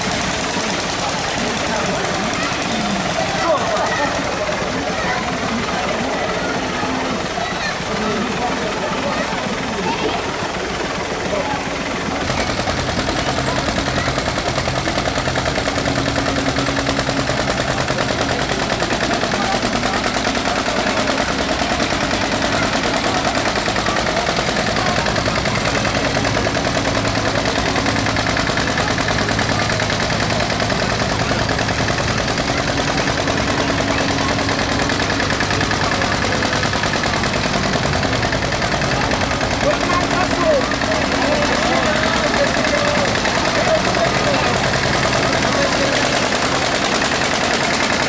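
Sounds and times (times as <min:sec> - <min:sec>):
tractor diesel engine rattling: 0:00.0 - 0:48.0.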